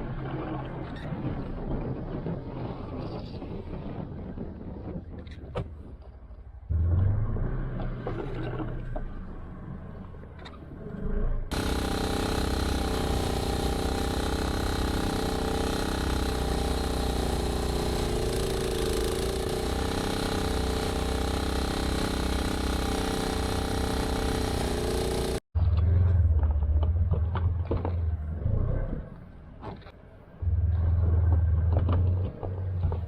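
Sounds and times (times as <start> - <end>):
deep engine rumble: 6.6 - 29.6, 30.2 - 33.0
snowblower engine running: 11.5 - 25.4.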